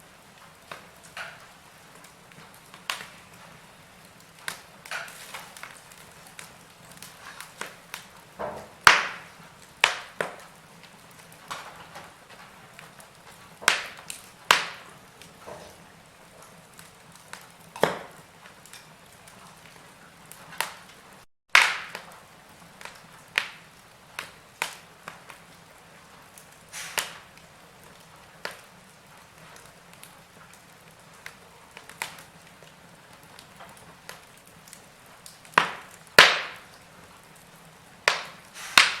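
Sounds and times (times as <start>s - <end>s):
wood fire crackling: 0.0s - 39.0s
sharp pops: 8.7s - 10.4s, 13.6s - 14.9s, 21.5s - 22.1s, 26.7s - 27.2s, 35.5s - 36.7s, 38.1s - 39.0s
faint hiss: 26.2s - 27.4s, 37.8s - 39.0s.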